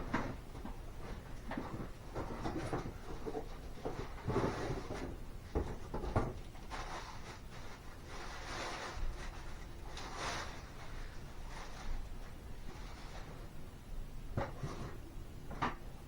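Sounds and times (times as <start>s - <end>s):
objects knocking and rustling: 0.0s - 7.8s.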